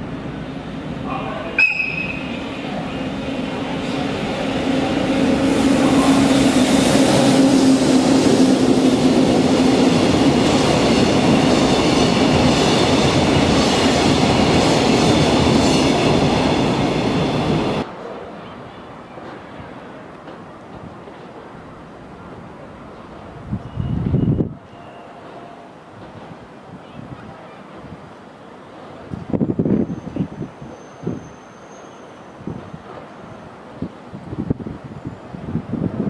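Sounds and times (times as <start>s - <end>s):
train wheels rumbling on rail: 0.0s - 36.0s
short sharp high note: 1.6s - 2.3s.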